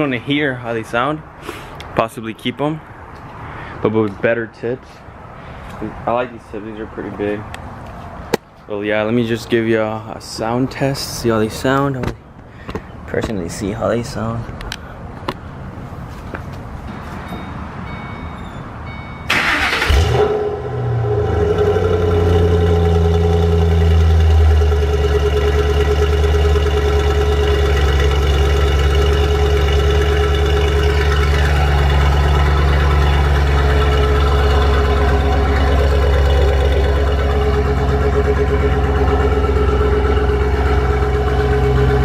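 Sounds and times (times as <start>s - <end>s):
car engine starting and idling: 18.8s - 42.0s.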